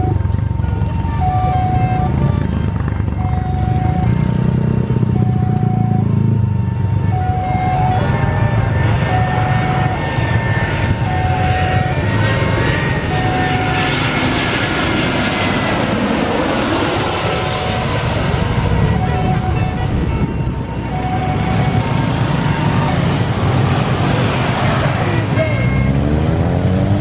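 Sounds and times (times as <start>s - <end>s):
airplane engines whining: 0.0s - 27.0s
short steady beep: 25.4s - 26.2s.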